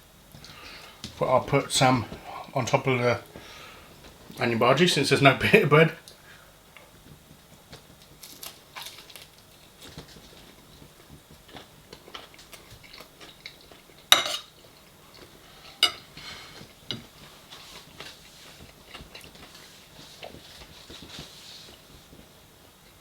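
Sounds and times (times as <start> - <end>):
cutlery clinking on a plate: 14.1 - 14.5, 15.7 - 16.1.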